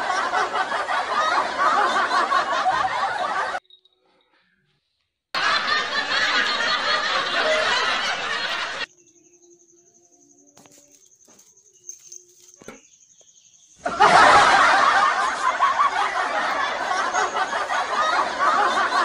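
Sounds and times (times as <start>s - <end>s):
recorded laughter: 0.0s - 3.6s, 5.4s - 8.9s, 13.8s - 19.0s.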